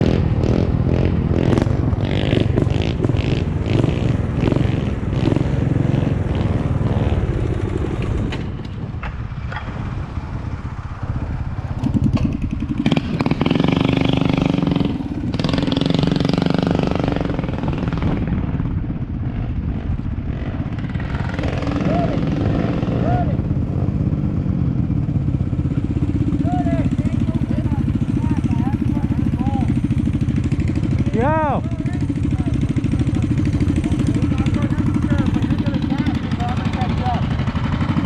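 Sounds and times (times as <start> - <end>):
small motorbike engine running: 24.4 - 38.0.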